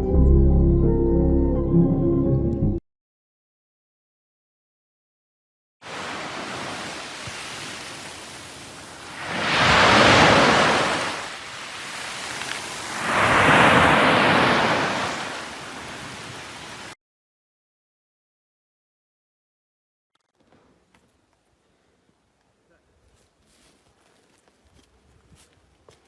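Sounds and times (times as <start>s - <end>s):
waves breaking loudly: 5.8s - 17.0s
waves washing: 5.8s - 17.0s.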